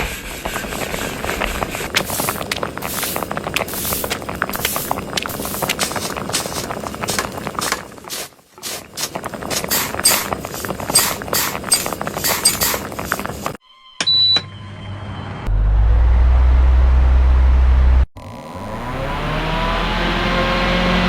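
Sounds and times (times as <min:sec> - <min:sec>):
short high beep: 0:13.6 - 0:15.1
low engine rumble: 0:15.2 - 0:18.1.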